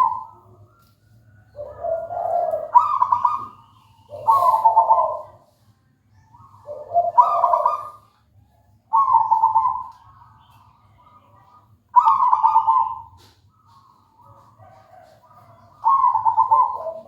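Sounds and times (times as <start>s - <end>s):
dove cooing: 0.0s - 0.8s, 1.4s - 5.5s, 6.4s - 8.2s, 8.9s - 10.4s, 11.9s - 17.0s.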